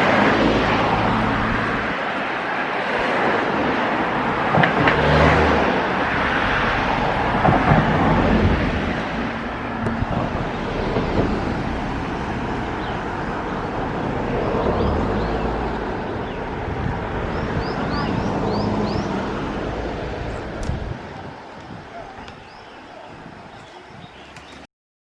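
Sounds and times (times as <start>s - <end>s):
outdoor rumble: 0.0s - 22.8s
bird chirping: 14.4s - 19.4s, 21.8s - 24.6s.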